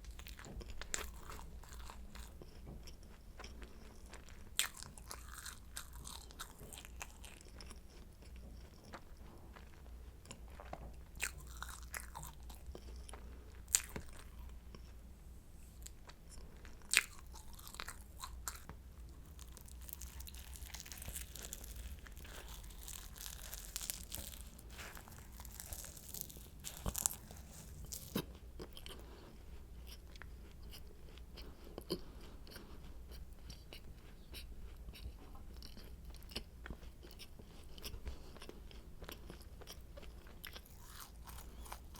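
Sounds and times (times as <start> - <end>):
chewing: 0.0 - 15.0, 15.8 - 41.9
pastry crackling and crunching: 0.0 - 15.0, 15.8 - 29.2, 35.6 - 41.9.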